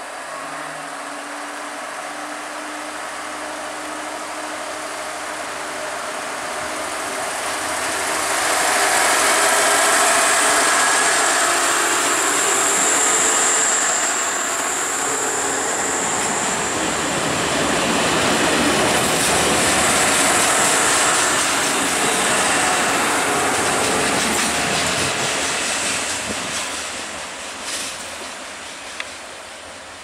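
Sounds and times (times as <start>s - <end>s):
high steady whine: 0.0s - 23.4s
diesel railcar passing: 0.0s - 30.0s.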